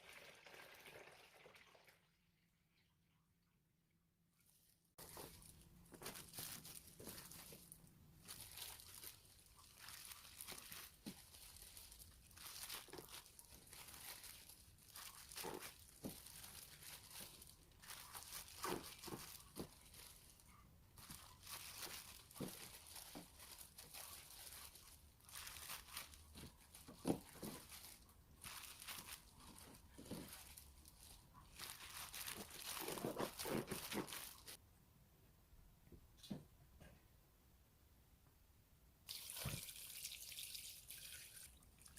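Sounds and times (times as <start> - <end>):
crinkling and rustling handling: 4.4 - 34.6.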